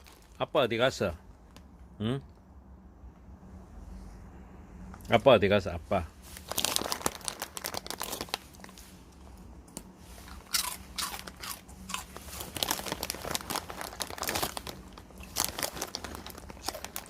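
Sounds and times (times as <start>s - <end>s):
dog crunching crackers: 6.4s - 8.8s, 9.7s - 17.0s.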